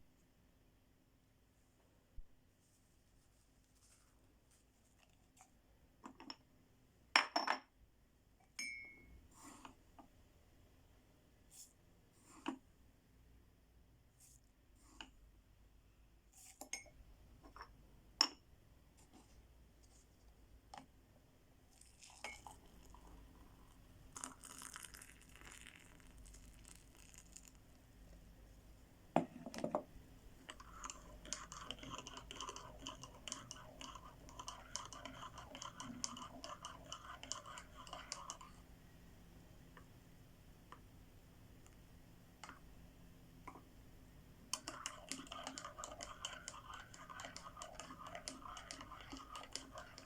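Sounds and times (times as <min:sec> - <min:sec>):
scratching strokes: 0:44.6 - 0:50.0.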